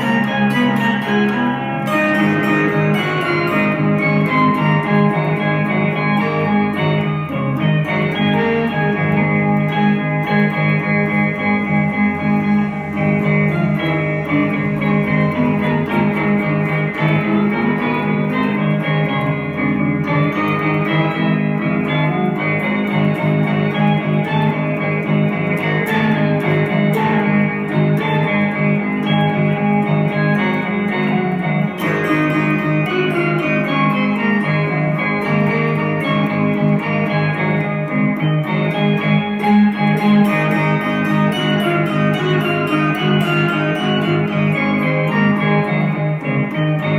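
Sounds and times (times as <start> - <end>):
ambient electric guitar: 0.0 - 46.9
backing track: 0.0 - 46.9
low drone: 9.0 - 18.4.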